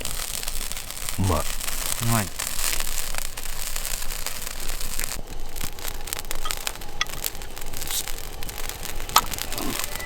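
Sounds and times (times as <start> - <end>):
campfire crackling: 0.0 - 10.0.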